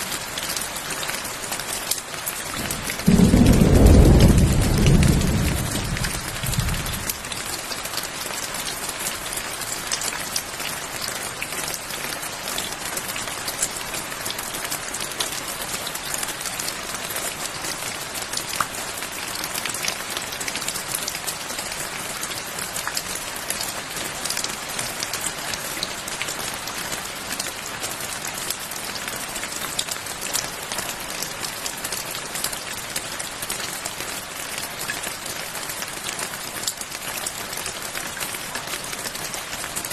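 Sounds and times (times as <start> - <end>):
steady rain: 0.0 - 39.9
thunder rumble: 2.6 - 7.3.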